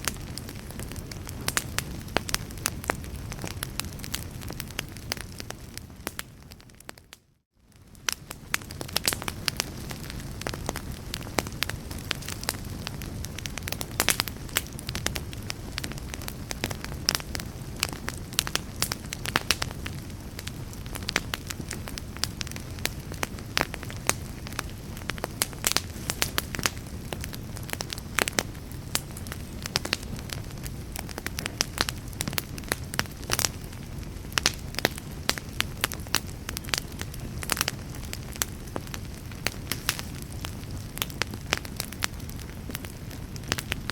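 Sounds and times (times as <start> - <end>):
fire crackling: 0.0 - 43.9
low rumble of fire: 0.0 - 43.9.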